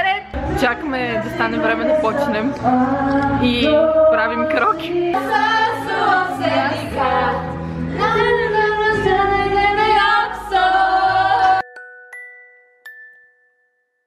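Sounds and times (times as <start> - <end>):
pop song with female singing: 0.0 - 11.7
ringing chime notes: 11.6 - 14.0.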